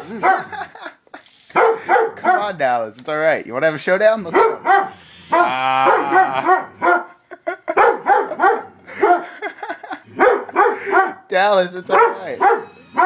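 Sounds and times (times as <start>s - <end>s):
dog barking: 0.0s - 0.7s, 1.5s - 2.6s, 4.3s - 9.4s, 10.1s - 11.3s, 11.9s - 13.0s.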